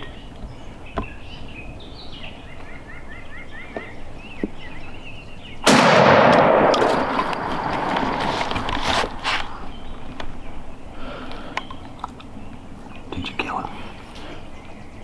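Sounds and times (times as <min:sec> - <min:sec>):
shotgun blast echoing: 0:05.6 - 0:09.8.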